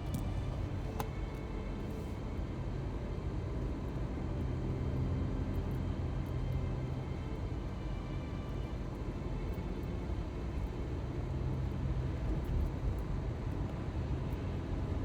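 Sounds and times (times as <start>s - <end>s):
low engine rumble: 0.0s - 4.2s.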